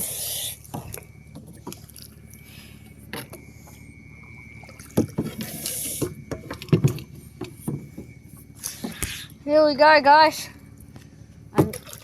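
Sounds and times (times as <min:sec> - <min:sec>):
paddle splashing water: 0:00.1 - 0:09.3, 0:11.6 - 0:12.0
paddle knocking canoe hull: 0:04.8 - 0:08.2, 0:11.5 - 0:12.0.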